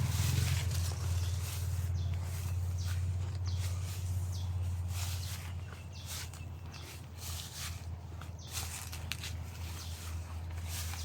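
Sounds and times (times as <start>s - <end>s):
steady low rumble: 0.0s - 6.0s
footsteps on garden path: 0.0s - 11.0s.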